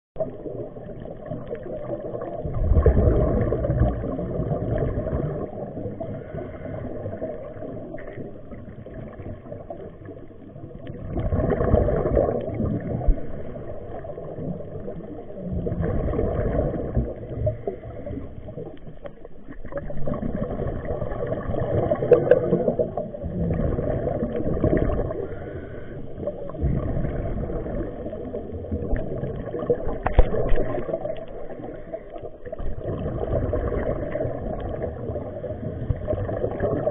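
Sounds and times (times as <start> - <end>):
underwater air bubbling: 0.2 - 36.9
diver breathing through regulator: 5.9 - 7.3, 25.0 - 27.9.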